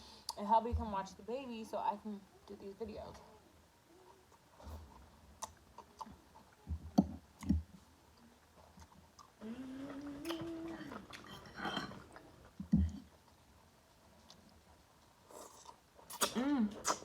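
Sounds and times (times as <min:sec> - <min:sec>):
person chewing: 0:04.3 - 0:06.6, 0:08.6 - 0:13.5, 0:14.1 - 0:17.0
person humming mmm: 0:09.4 - 0:11.8.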